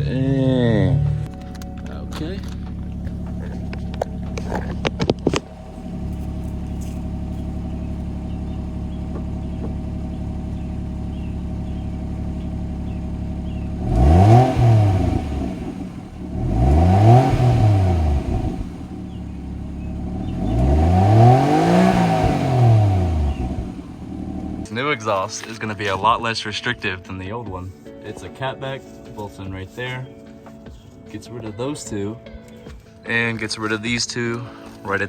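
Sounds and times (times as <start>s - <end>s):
car engine idling and revving: 0.0s - 24.7s.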